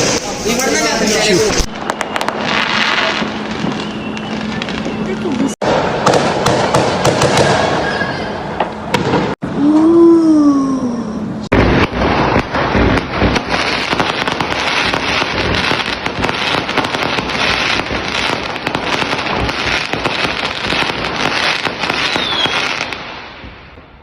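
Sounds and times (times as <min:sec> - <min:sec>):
fireworks bangs and crackles: 0:00.0 - 0:09.6, 0:11.4 - 0:24.0
falling firework whistle: 0:01.5 - 0:05.5, 0:07.3 - 0:10.1, 0:11.8 - 0:23.6.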